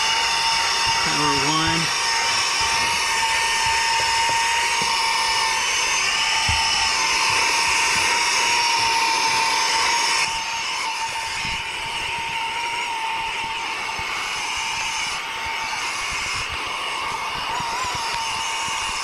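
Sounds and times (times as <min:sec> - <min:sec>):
vacuum motor whine: 0:00.0 - 0:19.0.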